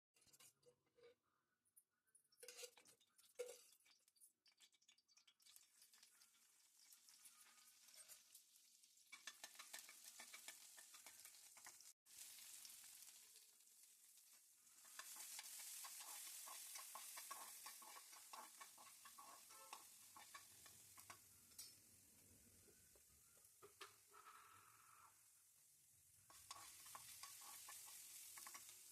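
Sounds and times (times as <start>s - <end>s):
food sizzling in a pan: 2.4s - 28.9s.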